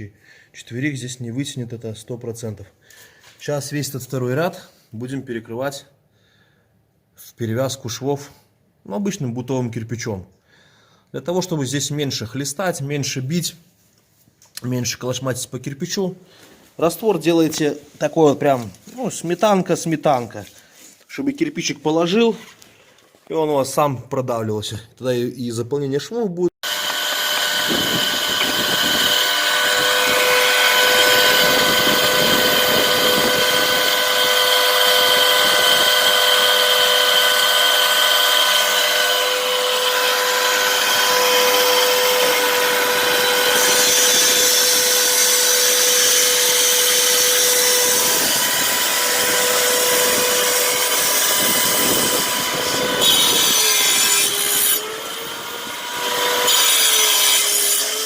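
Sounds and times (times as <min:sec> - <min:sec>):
angle grinder cutting brick: 0:26.6 - 0:58.0.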